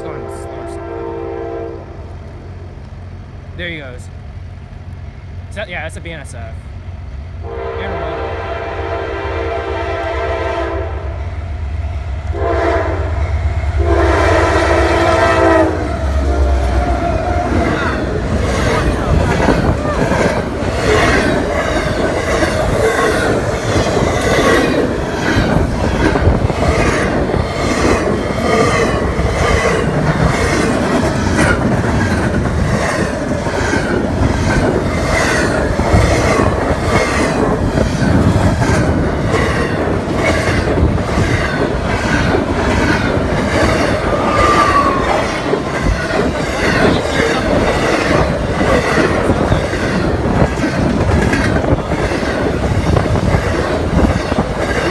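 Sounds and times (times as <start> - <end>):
train wheels rumbling on rail: 0.0 - 54.9
wheels clicking over rail joints: 13.6 - 54.9
high-pitched wheel squeals: 43.6 - 50.6.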